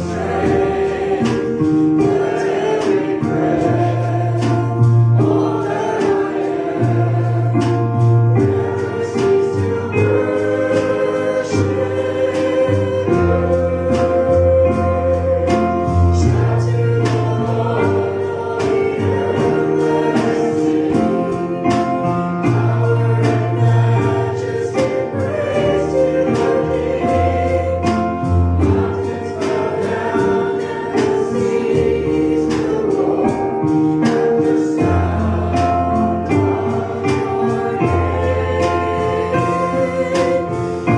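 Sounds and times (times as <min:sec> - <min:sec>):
band playing: 0:00.0 - 0:40.9
choir singing gospel song: 0:00.0 - 0:40.9.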